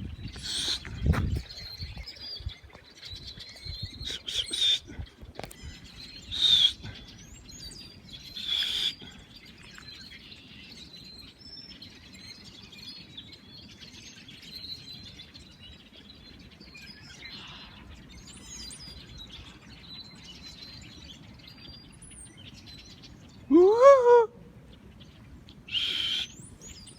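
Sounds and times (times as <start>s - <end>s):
birds chirping and singing: 0.0s - 26.9s
loud harsh bird calls: 0.4s - 0.9s, 3.9s - 5.1s, 5.8s - 7.4s, 8.3s - 9.3s, 25.7s - 26.8s
rising and falling bird call: 0.4s - 0.9s, 3.8s - 5.0s, 5.9s - 7.2s, 8.3s - 9.0s, 23.4s - 24.8s, 25.7s - 26.9s.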